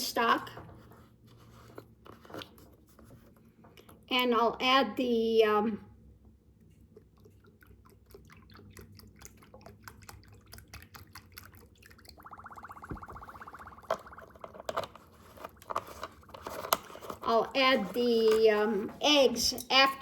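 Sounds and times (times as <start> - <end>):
liquid pouring into a pot: 6.8 - 16.5.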